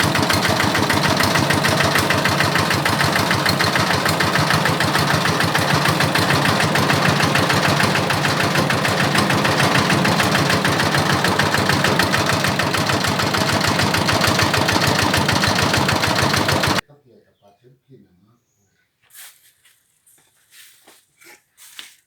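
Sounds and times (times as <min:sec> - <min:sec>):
diesel engine knocking: 0:00.0 - 0:16.8.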